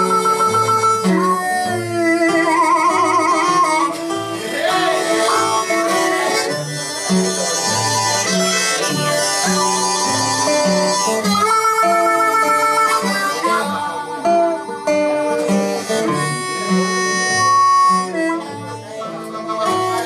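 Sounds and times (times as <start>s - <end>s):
acoustic guitar bass line: 0.0s - 20.0s
blues harmonica long notes: 0.0s - 20.0s.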